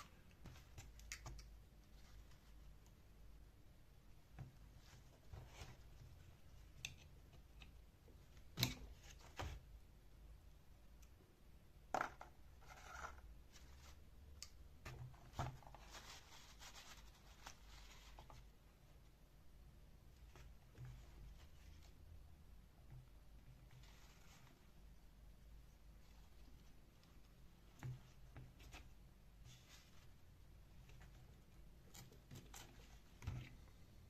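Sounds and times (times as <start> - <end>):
scraping and rubbing: 12.6 - 14.0.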